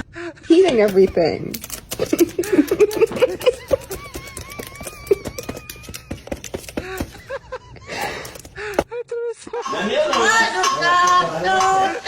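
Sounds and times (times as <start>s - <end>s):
parrot clicking and chirping: 0.9s - 7.3s.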